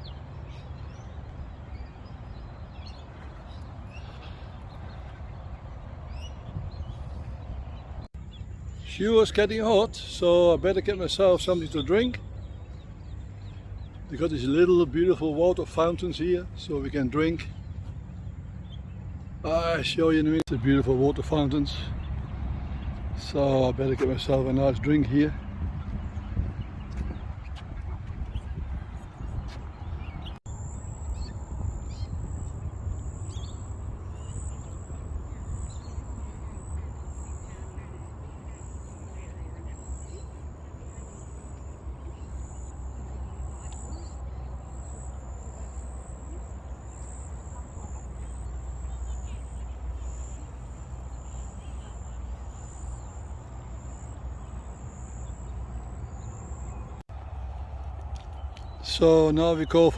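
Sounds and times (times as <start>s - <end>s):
wind rumble on microphone: 0.0s - 8.6s, 21.9s - 48.6s
birds chirping and calling: 0.0s - 57.0s
insects chirping: 30.5s - 57.0s.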